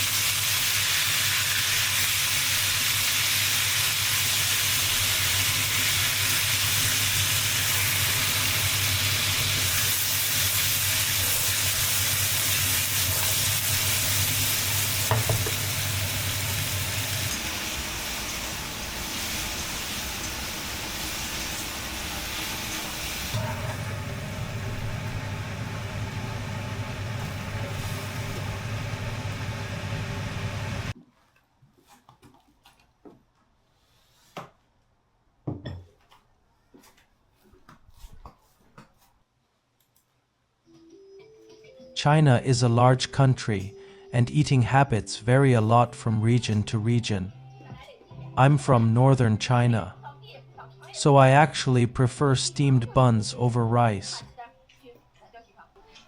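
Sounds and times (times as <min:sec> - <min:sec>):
food sizzling in a pan: 0:00.0 - 0:31.0
low hum: 0:22.0 - 0:30.9.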